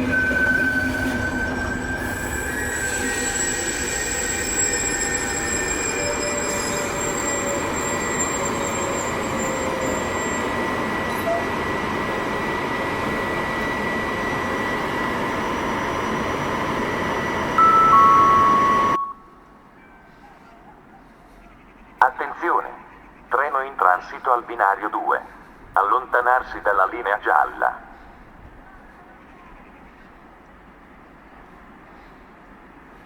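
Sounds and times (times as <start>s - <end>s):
train wheels on rails: 0.0s - 19.0s
wheels squealing: 0.0s - 19.0s.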